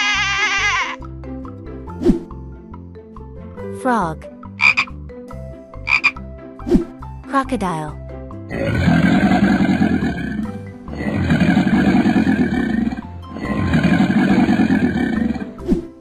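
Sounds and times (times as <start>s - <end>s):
cartoon crocodile growls: 8.5s - 15.6s.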